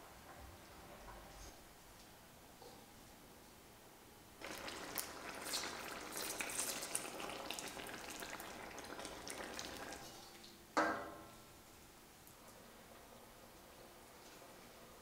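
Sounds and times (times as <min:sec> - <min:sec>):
curry sizzling and bubbling: 0:04.4 - 0:10.6.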